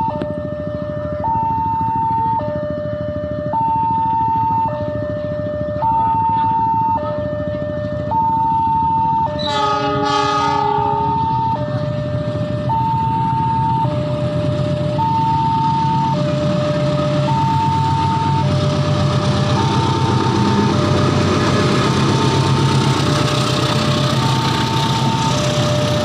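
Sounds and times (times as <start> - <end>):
locomotive engine rumble: 0.0 - 26.0
two-tone electronic warning alarm: 0.0 - 26.0
locomotive horn blasts: 9.2 - 11.7.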